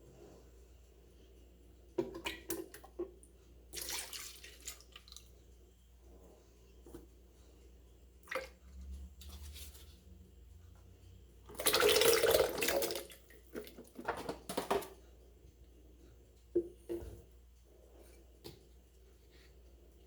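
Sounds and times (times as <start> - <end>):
liquid pouring into blender jar: 11.5 - 13.7.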